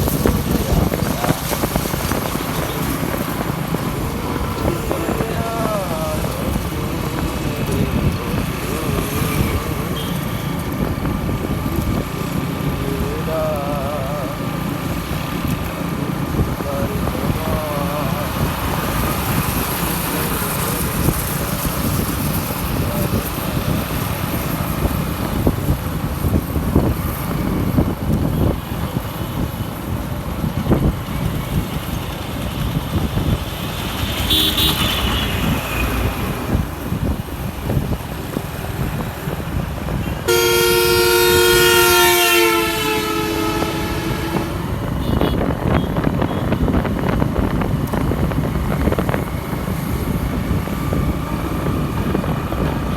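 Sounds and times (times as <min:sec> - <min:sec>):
motorcycle road and wind rumble: 0:00.0 - 0:52.9
loud vehicle horn: 0:07.4 - 0:10.8, 0:34.0 - 0:36.1, 0:40.0 - 0:46.6.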